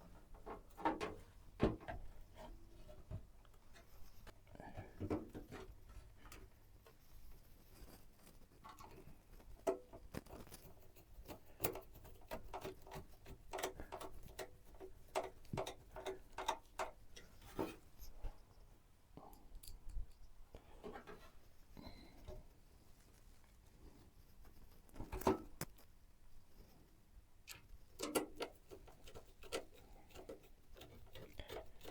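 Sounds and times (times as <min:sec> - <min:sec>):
plastic and metal parts clicking: 0:09.6 - 0:17.3, 0:27.5 - 0:31.9.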